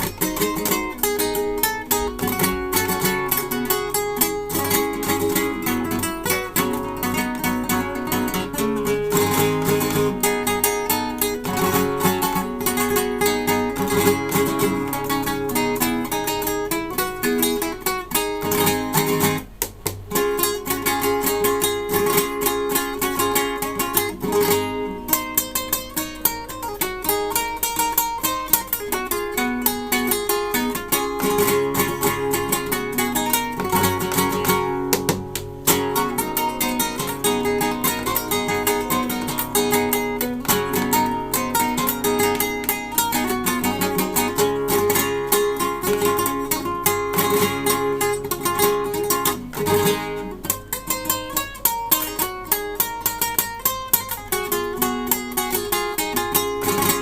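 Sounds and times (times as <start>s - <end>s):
acoustic guitar plucking: 0.0s - 57.0s.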